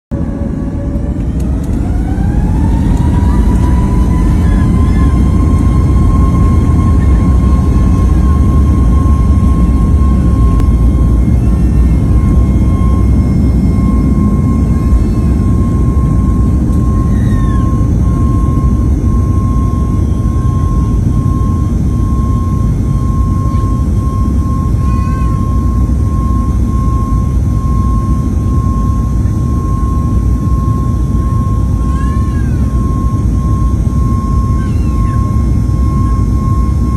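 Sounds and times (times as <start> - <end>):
jet engine rumble: 0.1 - 36.9
jet engines high whine: 0.1 - 36.9.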